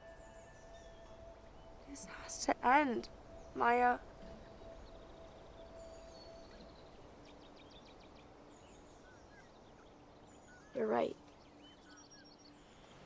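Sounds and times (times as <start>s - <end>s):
distant small birds chirping: 0.0s - 13.0s.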